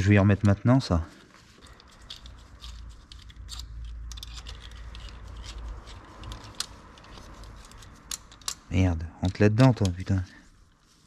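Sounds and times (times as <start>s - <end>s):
metal parts clicking and tapping: 1.6s - 10.2s.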